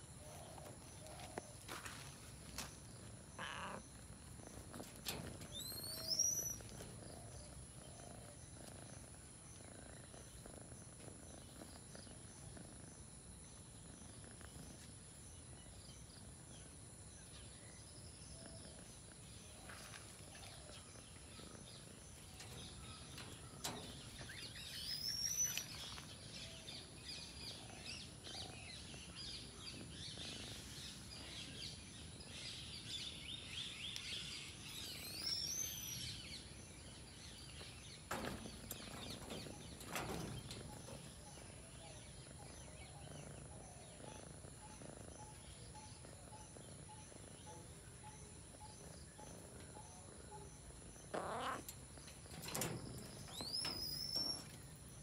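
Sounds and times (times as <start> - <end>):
birds calling: 0.0 - 10.6, 19.6 - 30.4, 33.4 - 55.0.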